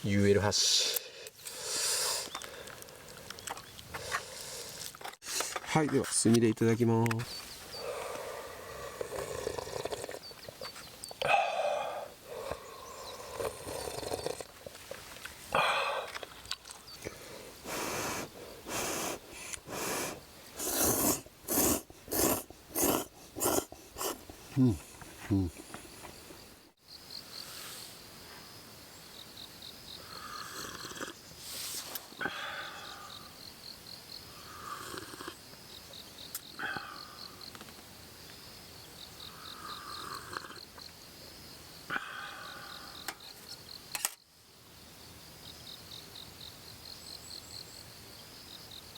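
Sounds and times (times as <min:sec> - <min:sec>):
insect chirping: 0:00.0 - 0:48.9
person slurping noodles: 0:09.0 - 0:10.2, 0:13.2 - 0:14.5, 0:17.7 - 0:25.6, 0:30.5 - 0:31.8
noodles being slurped: 0:18.7 - 0:24.5.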